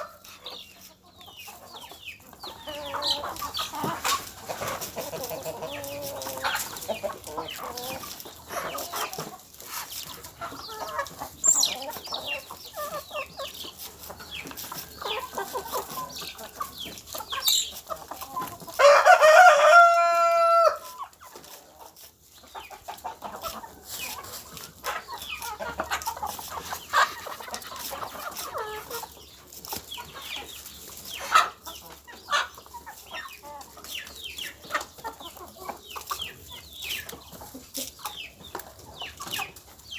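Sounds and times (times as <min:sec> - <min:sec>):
chickens clucking: 0:00.0 - 0:39.9
rooster crowing: 0:18.8 - 0:20.8.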